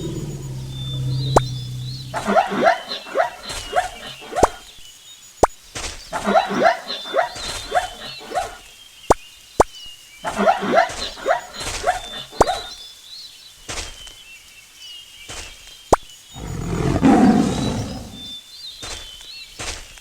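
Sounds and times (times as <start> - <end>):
animal yelping: 0.0 - 4.6, 6.2 - 8.6, 10.2 - 12.7, 16.4 - 18.3.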